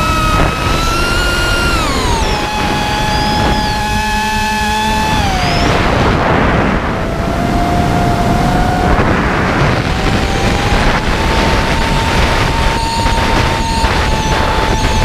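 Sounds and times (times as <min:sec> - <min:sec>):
drone motors whining: 0:00.0 - 0:15.0
rushing noise: 0:00.0 - 0:15.0.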